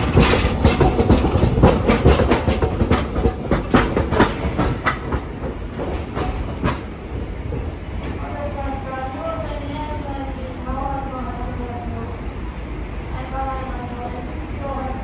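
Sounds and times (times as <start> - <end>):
tram running rumble: 0.0 - 15.0
tram wheels clacking over joints: 0.0 - 15.0.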